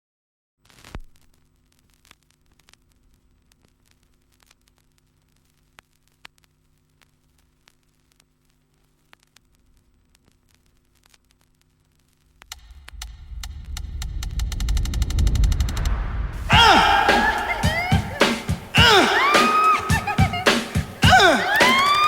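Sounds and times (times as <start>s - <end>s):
small clicks and crackle: 0.6s - 13.0s.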